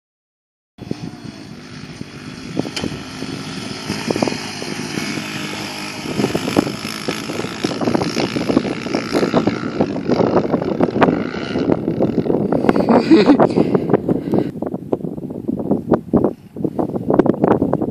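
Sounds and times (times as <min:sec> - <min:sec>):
dirt bike engine running: 0:00.8 - 0:14.5.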